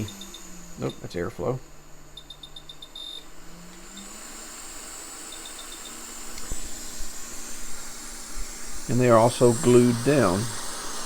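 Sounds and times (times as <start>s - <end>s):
blower hissing: 0.0s - 11.0s
short beeps: 2.2s - 3.2s.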